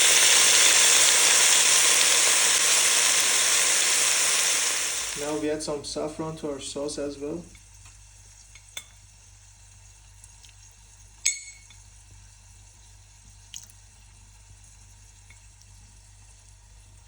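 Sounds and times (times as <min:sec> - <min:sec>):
low kitchen background: 0:00.0 - 0:17.0
utensil clinking against dish: 0:11.2 - 0:11.8.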